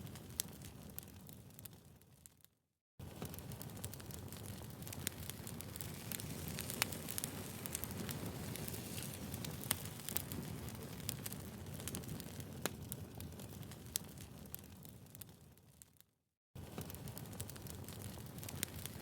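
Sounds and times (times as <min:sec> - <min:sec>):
fire crackling and popping: 0:00.0 - 0:19.0
rush of flames: 0:03.2 - 0:15.2, 0:16.6 - 0:19.0.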